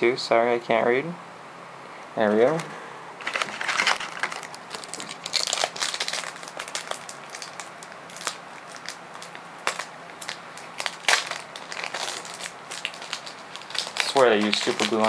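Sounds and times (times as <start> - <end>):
foil wrapper crinkling: 3.2 - 15.0.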